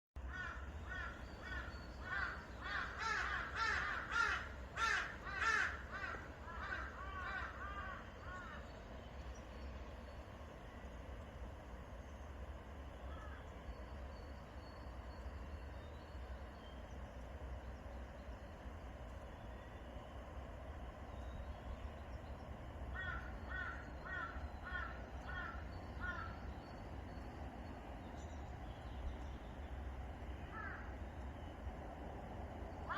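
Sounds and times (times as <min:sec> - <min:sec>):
forest birds calling: 0:00.2 - 0:11.1, 0:12.8 - 0:31.7
low steady rumble: 0:00.2 - 0:32.9
crow cawing: 0:00.3 - 0:08.6, 0:13.1 - 0:13.4, 0:22.9 - 0:26.4, 0:30.5 - 0:30.9.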